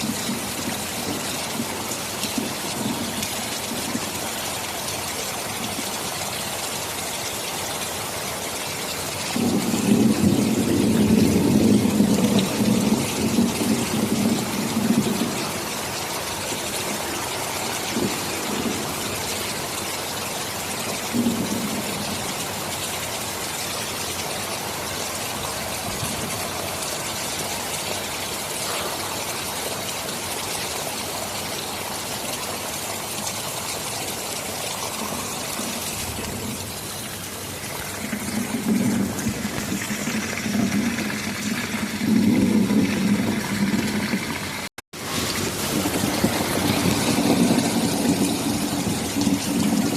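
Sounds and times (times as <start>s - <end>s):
thunder rumbling: 0.0s - 4.4s, 9.4s - 20.2s, 20.9s - 22.6s, 34.8s - 49.9s
heavy rain falling: 0.0s - 49.9s.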